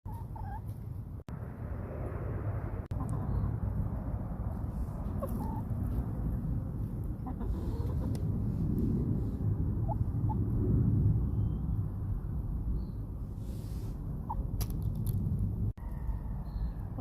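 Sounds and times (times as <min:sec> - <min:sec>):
chickens clucking: 0:00.1 - 0:00.8, 0:05.0 - 0:06.0, 0:07.1 - 0:08.4
steady low rumble: 0:00.1 - 0:17.0.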